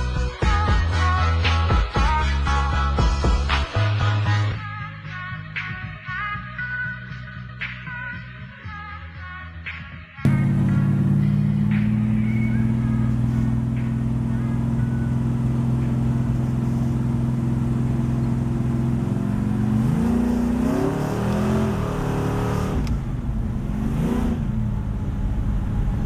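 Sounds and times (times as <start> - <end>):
engine idling and revving: 10.3 - 26.0.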